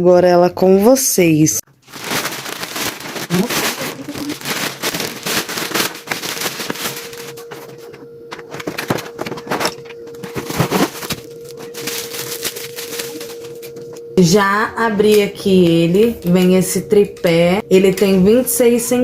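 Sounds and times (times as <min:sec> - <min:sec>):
faint steady hum: 0:01.4 - 0:19.0
plastic packaging crinkling: 0:01.7 - 0:07.8, 0:10.3 - 0:13.8.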